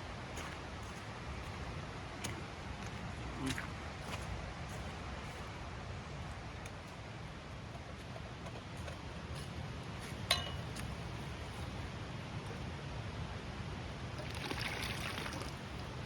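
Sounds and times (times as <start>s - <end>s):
stream flowing: 8.7s - 16.0s
sharp clink: 10.3s - 10.8s.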